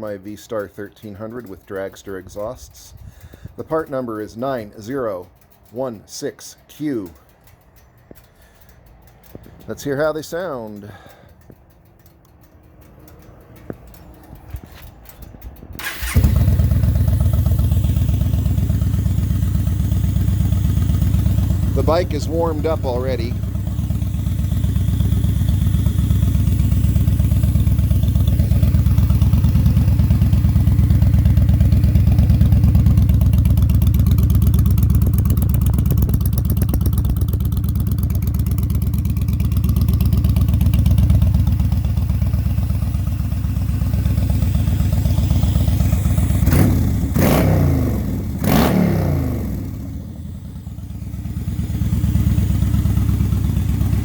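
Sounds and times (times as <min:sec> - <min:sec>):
motorcycle engine idling: 0:00.4 - 0:05.9, 0:07.0 - 0:54.0.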